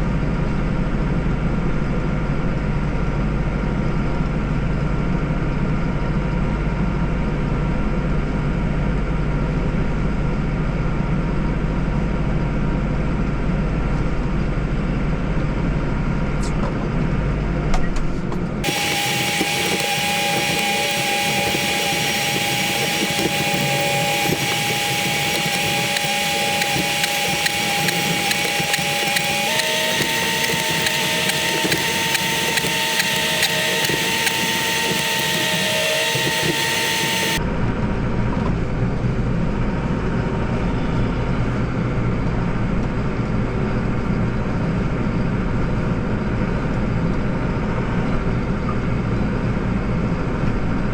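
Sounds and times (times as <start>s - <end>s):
snowblower hiss with whining tones: 18.6s - 37.4s.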